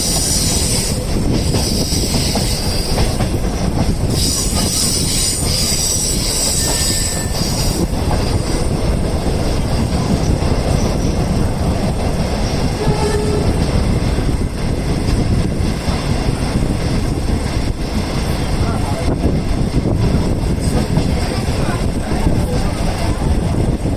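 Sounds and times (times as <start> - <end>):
train wheels rumbling on rails: 0.0 - 23.9
hiss: 4.1 - 7.8.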